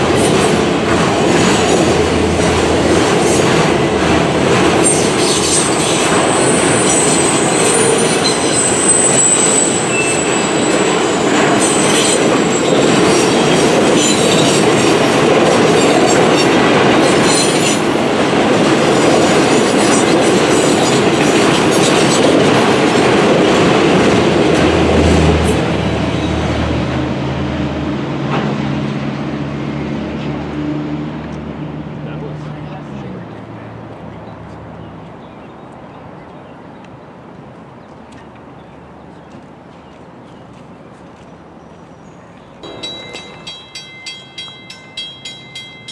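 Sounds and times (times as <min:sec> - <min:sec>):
freight train rolling past: 0:00.0 - 0:35.1, 0:42.1 - 0:45.9
wheel squeal: 0:04.9 - 0:13.4.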